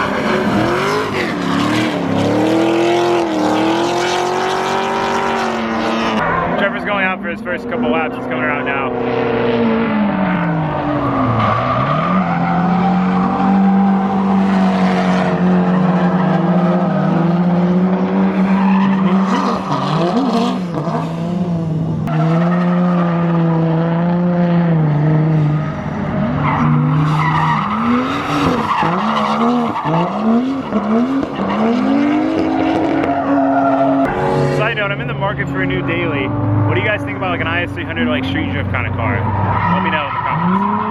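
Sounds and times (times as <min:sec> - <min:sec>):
car engine revving: 0:00.0 - 0:40.9
tyres squealing: 0:39.2 - 0:40.9.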